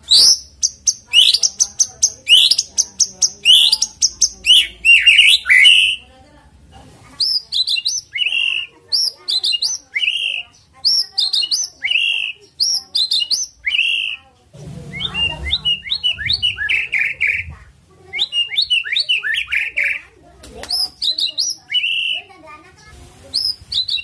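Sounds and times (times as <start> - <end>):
songbird singing short phrases: 0.0 - 6.0, 18.1 - 22.3
low rumble: 14.6 - 17.8.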